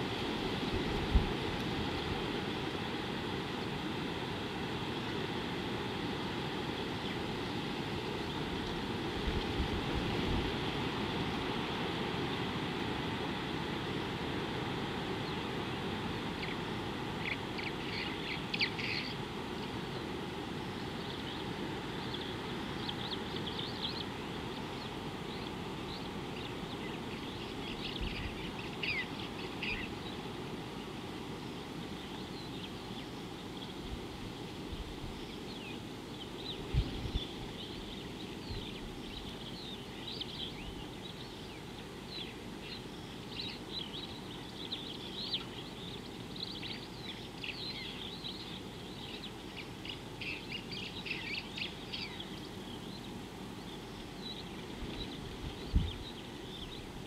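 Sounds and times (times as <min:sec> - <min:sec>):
birds chirping: 0:15.2 - 0:57.0.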